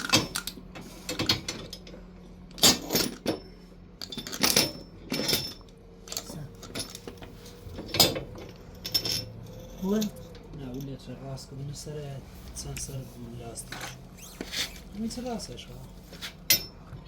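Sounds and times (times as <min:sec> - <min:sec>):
low steady hum: 0:00.0 - 0:17.0
metallic clinks and clanks: 0:02.6 - 0:11.1, 0:16.5 - 0:16.8.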